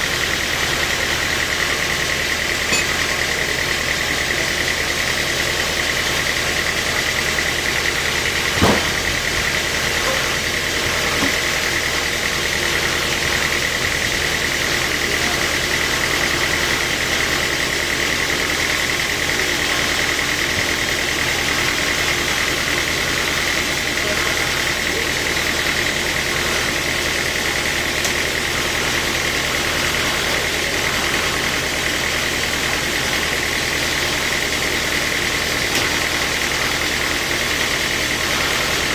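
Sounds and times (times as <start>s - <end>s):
sawmill machinery humming: 0.0s - 38.9s
steady high tone: 2.6s - 3.3s.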